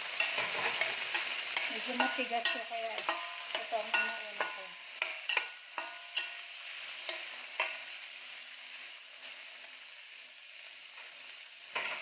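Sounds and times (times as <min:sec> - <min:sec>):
spatula scraping a pan: 0:00.0 - 0:08.0
food sizzling in oil: 0:00.0 - 0:12.0.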